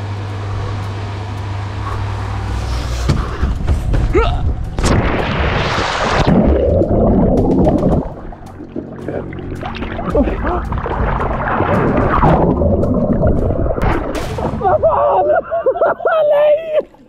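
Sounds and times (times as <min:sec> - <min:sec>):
water churning: 0:01.9 - 0:15.3
person splashing into pool: 0:04.8 - 0:14.9.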